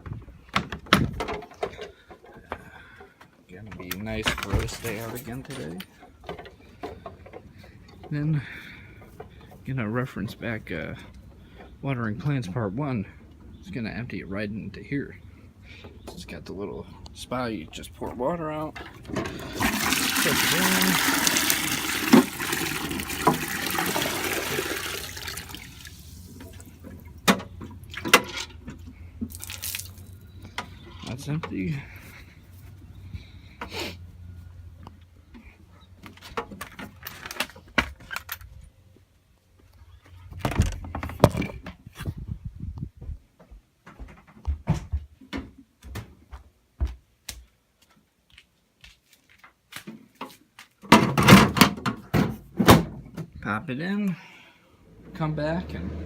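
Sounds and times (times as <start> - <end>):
water pouring into a container: 19.4 - 27.1, 29.3 - 30.2
plastic bucket knocks: 19.6 - 25.0.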